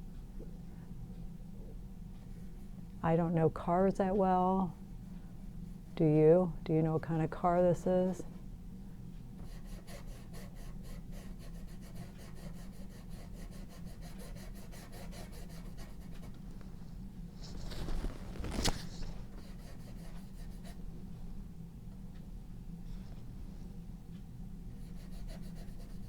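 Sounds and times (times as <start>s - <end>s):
pencil shading on paper: 9.4s - 16.3s, 19.4s - 20.8s, 24.8s - 26.0s.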